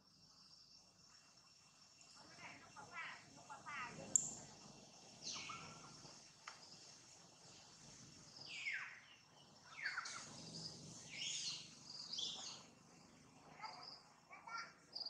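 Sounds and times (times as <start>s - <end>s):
quiet forest ambience: 0.0s - 15.0s
high bird chirps: 5.2s - 6.0s, 8.4s - 12.7s.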